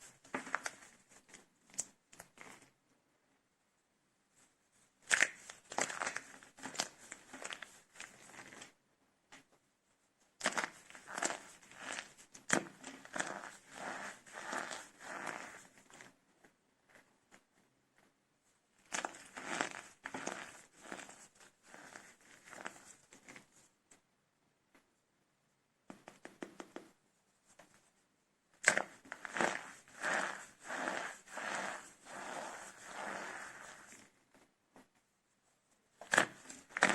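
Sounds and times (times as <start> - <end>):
soap crunching and crackling: 5.0 - 8.7, 10.4 - 16.1, 18.8 - 23.4, 28.6 - 34.0, 36.0 - 36.9.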